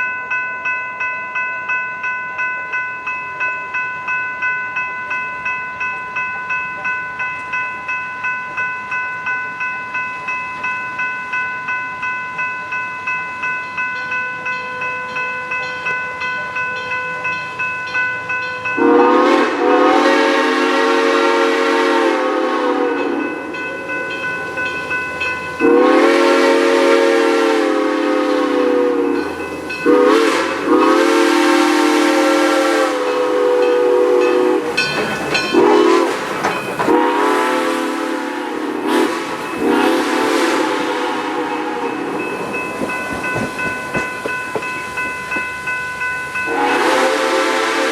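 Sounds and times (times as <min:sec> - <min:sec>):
crossing bell ringing: 0:00.0 - 0:47.9
steam whistle blasts: 0:18.8 - 0:23.3, 0:25.6 - 0:42.3, 0:46.5 - 0:47.9.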